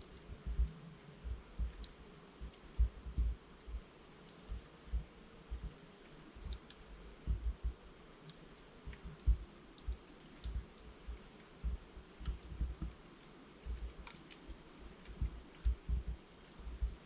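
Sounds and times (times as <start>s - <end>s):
soft low thuds: 0.0s - 3.9s, 7.2s - 7.8s, 8.9s - 10.7s, 11.6s - 13.0s, 15.1s - 17.0s
faint hiss of burning: 0.0s - 17.0s
log fire crackling and popping: 0.0s - 17.0s.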